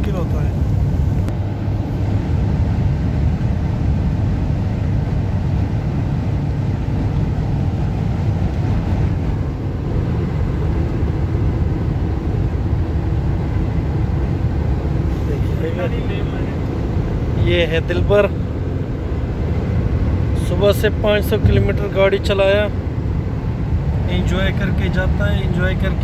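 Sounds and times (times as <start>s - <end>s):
road and wind noise: 0.0s - 26.0s.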